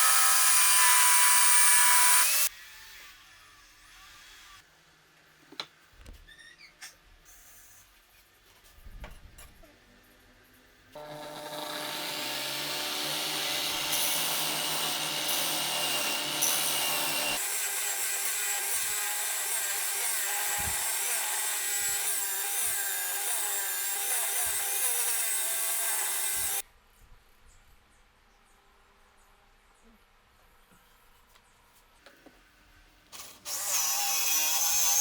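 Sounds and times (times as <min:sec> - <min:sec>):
power tool cutting wood: 0:00.0 - 0:03.2, 0:11.0 - 0:26.6, 0:33.2 - 0:35.0.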